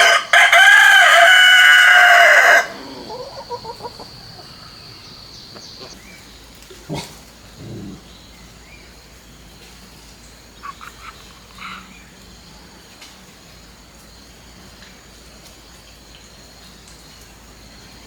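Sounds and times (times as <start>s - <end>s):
croaking animal calls: 0.0s - 8.3s, 10.6s - 12.0s
outdoor background noise: 0.0s - 18.0s.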